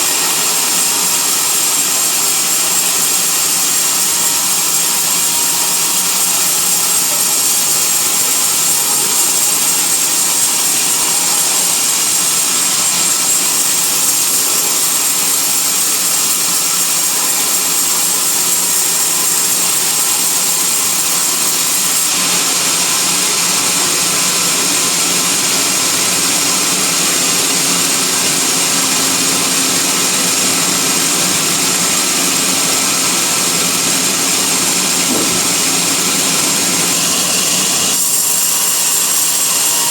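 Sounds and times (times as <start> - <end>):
bandsaw hiss and whine: 31.2 - 39.9.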